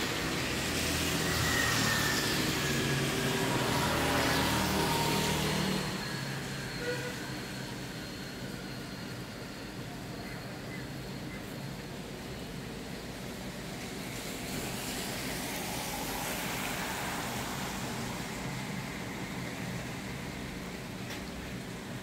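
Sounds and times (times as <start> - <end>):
rain hissing: 12.6 - 21.9.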